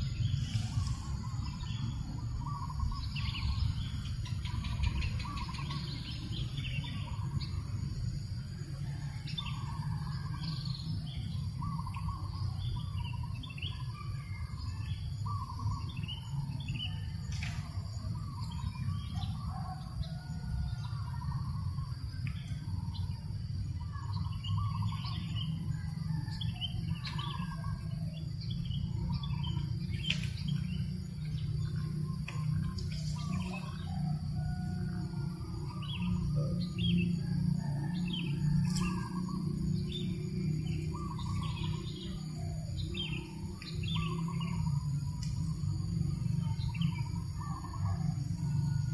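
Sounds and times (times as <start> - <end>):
birds chirping: 0.0 - 48.9.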